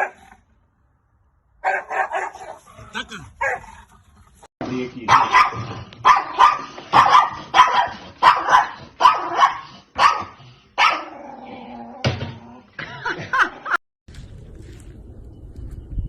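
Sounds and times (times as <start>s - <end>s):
dog barking: 0.0s - 0.3s, 1.6s - 3.8s, 5.1s - 11.2s.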